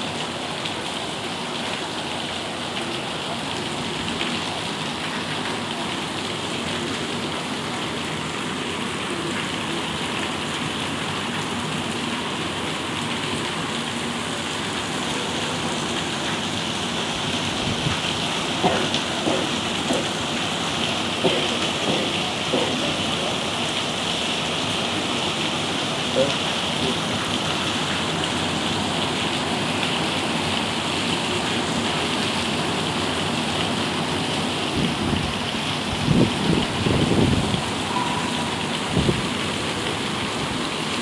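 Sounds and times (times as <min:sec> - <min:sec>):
steady rain falling: 0:00.0 - 0:41.0
drips tapping on a surface: 0:17.8 - 0:23.5.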